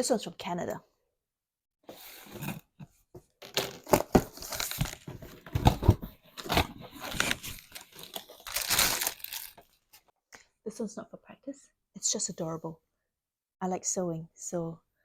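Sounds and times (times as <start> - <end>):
package tearing and crinkling: 6.4 - 9.7.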